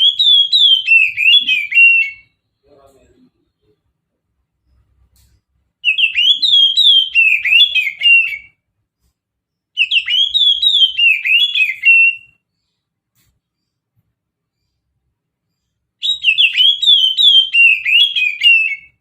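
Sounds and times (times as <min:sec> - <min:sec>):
magpie-robin singing whistled notes: 0:00.0 - 0:02.4, 0:05.8 - 0:08.6, 0:09.6 - 0:12.8, 0:15.5 - 0:19.0.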